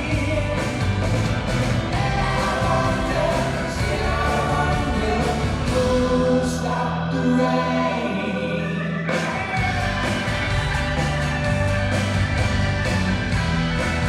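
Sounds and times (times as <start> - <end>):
live rock band: 0.0 - 14.0
voices singing together: 1.9 - 9.6.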